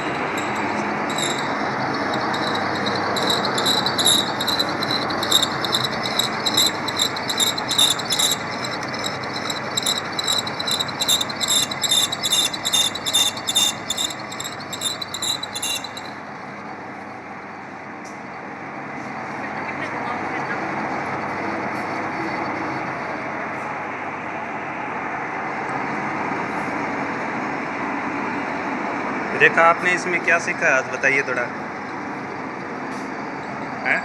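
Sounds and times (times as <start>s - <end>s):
cutting tool scraping metal: 0.0s - 16.1s
lathe motor and gearbox noise: 0.0s - 17.0s.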